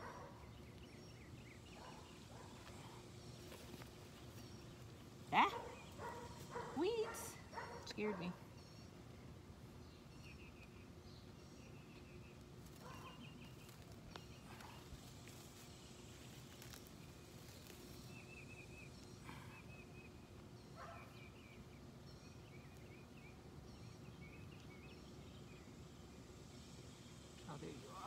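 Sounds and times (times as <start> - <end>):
birds chirping in trills: 0.0 - 28.0
outdoor background noise: 0.0 - 28.0.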